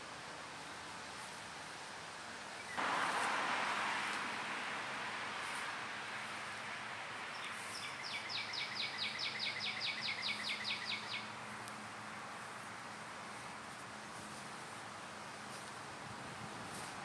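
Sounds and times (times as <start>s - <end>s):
steady background noise: 0.0s - 17.0s
songbird singing: 2.5s - 11.8s.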